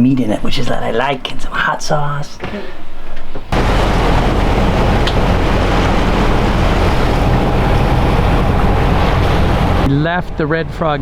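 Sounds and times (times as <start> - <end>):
engine hum: 3.5 - 9.9
water rushing: 3.5 - 9.9
wind on microphone: 3.5 - 9.9.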